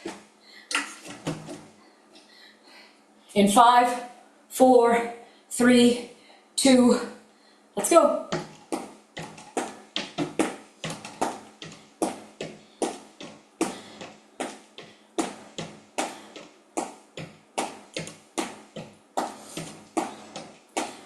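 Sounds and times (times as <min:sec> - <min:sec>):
running shoes on hard floor: 0:01.0 - 0:01.7, 0:08.3 - 0:21.0.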